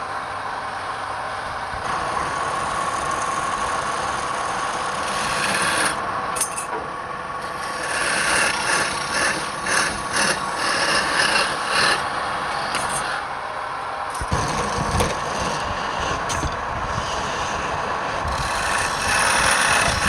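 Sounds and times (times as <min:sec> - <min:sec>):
wood lathe running: 0:01.8 - 0:06.0, 0:07.4 - 0:13.3, 0:14.1 - 0:20.0
turning tool rasping on wood: 0:04.2 - 0:06.0, 0:07.4 - 0:13.2, 0:14.2 - 0:20.0.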